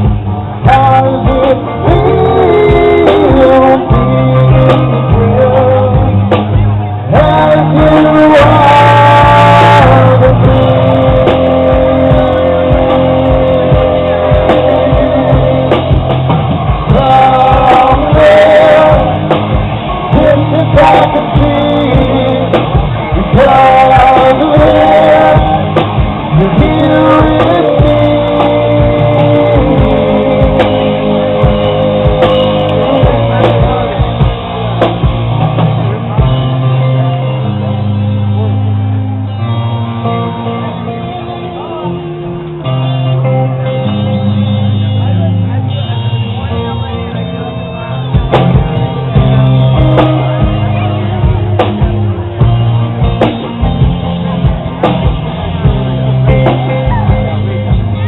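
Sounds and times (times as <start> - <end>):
person singing: 0.0 - 34.4
rock band playing live: 0.0 - 58.0.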